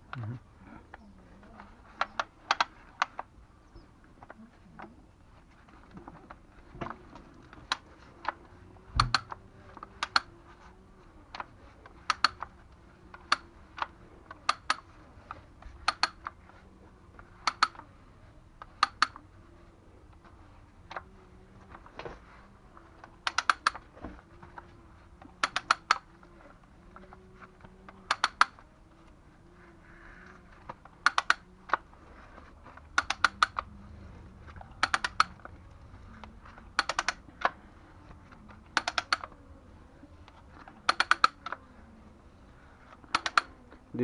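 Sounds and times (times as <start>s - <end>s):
faint low hum: 0.0s - 44.0s
sharp clicks: 1.6s - 3.3s, 5.9s - 10.7s, 11.3s - 16.6s, 17.2s - 17.9s, 18.6s - 19.3s, 22.8s - 29.2s, 29.9s - 39.4s, 40.3s - 41.7s, 42.8s - 43.8s.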